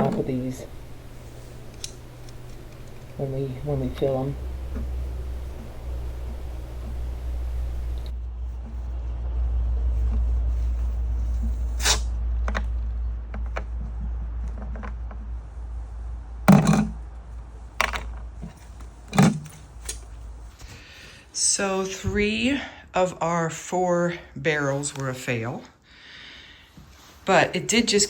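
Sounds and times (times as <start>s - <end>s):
sharp knocks and thumps: 0.0s - 8.8s, 16.5s - 17.0s.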